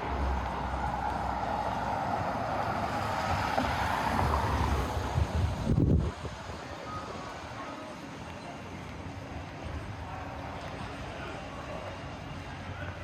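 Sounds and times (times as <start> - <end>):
vehicle passing: 0.0 - 6.0
street traffic noise: 0.0 - 13.0
wind buffeting microphone: 2.8 - 6.8.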